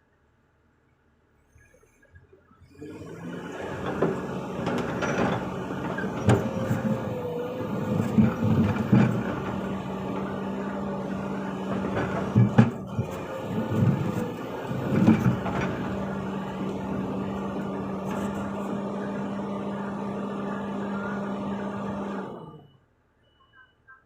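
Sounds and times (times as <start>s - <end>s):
excavator diesel engine running: 1.7s - 22.8s
machine knocks and thumps: 3.6s - 20.4s.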